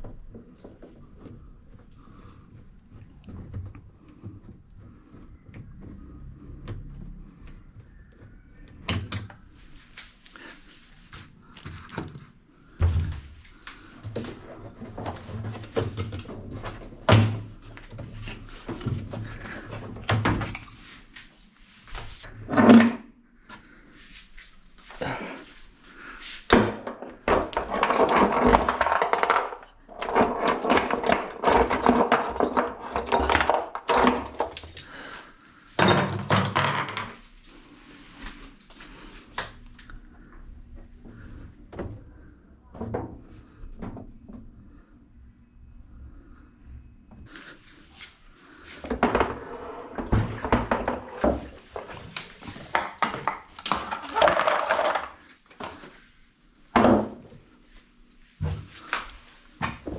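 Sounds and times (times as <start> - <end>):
plastic parts knocking and clicking: 26.5 - 34.9, 50.3 - 55.2
rattling and scraping: 26.5 - 35.1, 48.9 - 55.3.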